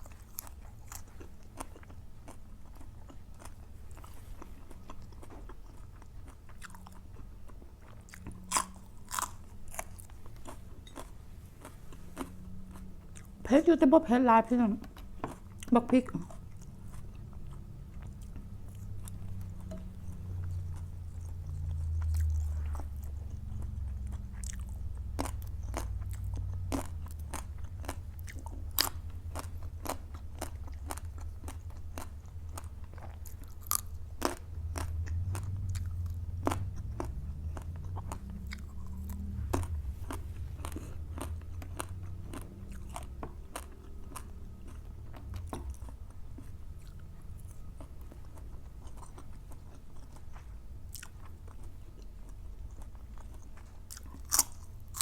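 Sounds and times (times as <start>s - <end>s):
chewing with sharp crunches: 0.0s - 13.5s, 14.8s - 55.0s
low rumble of jaw movement: 14.7s - 53.8s.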